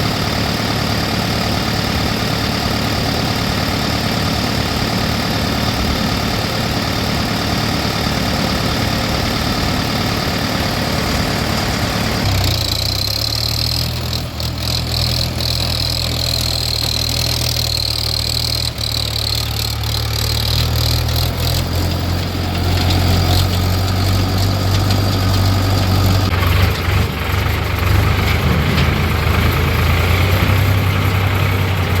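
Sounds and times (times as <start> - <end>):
diesel engine running at low speed: 0.0 - 32.0.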